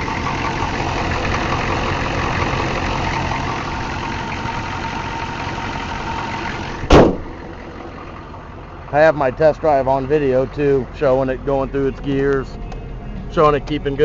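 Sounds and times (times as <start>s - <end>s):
diesel truck engine idling: 0.0s - 14.0s
sharp thump: 6.8s - 7.3s.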